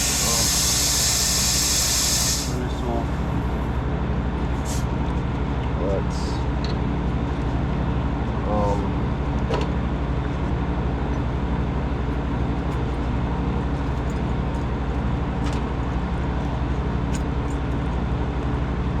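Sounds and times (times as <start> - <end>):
fan whoosh: 0.0 - 3.8
condensing unit hum: 0.0 - 19.0.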